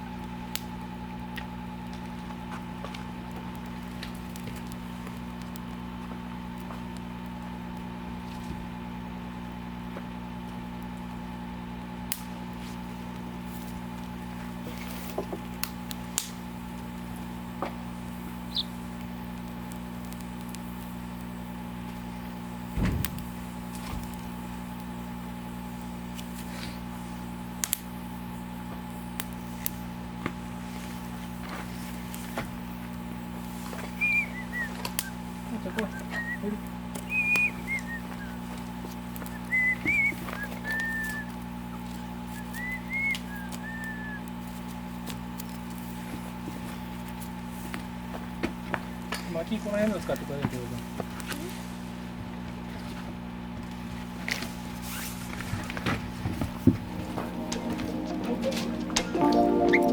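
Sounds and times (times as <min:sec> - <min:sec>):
wood fire crackling: 0:00.0 - 0:59.9
sharp pops of fire: 0:12.0 - 0:12.5, 0:14.8 - 0:21.4, 0:22.6 - 0:24.9, 0:27.6 - 0:28.1.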